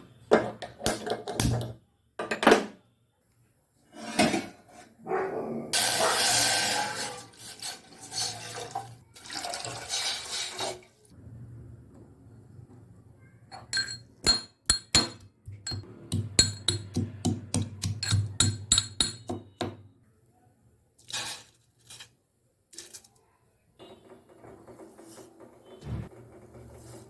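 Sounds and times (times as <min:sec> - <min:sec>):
spoon clinking against a tea cup: 0:13.5 - 0:15.8, 0:17.6 - 0:19.4.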